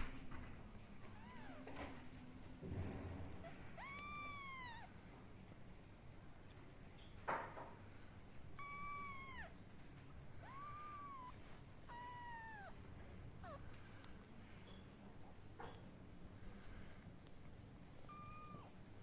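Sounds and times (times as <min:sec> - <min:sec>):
kitten mewing: 0:03.4 - 0:04.9, 0:08.6 - 0:09.6, 0:10.4 - 0:14.0, 0:18.0 - 0:18.8.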